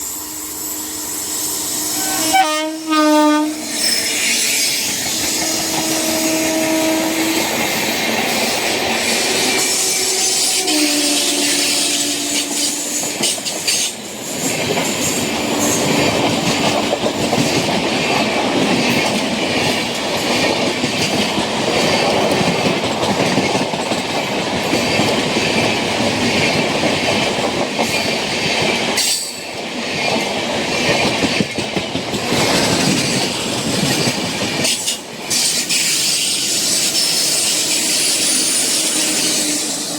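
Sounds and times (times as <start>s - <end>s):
train passing with wheel clatter: 0.0s - 39.9s
locomotive horn blasts: 0.1s - 3.8s, 5.4s - 7.6s, 9.7s - 12.9s.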